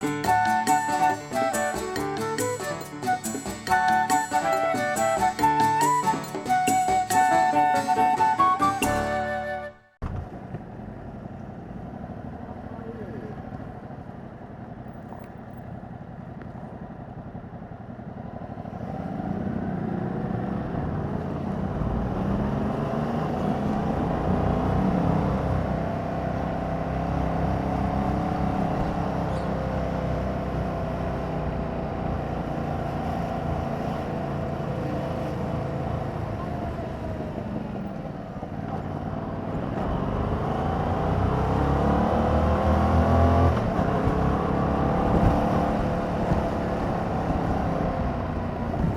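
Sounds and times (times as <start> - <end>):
motorcycle engine accelerating: 10.0 - 48.9.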